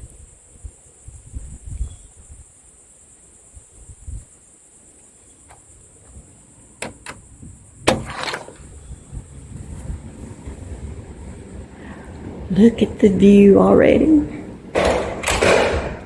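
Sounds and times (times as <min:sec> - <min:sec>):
door latch and handle clicking: 0:06.8 - 0:07.2, 0:07.9 - 0:08.8, 0:14.8 - 0:16.0
door knocking shut: 0:14.8 - 0:16.0.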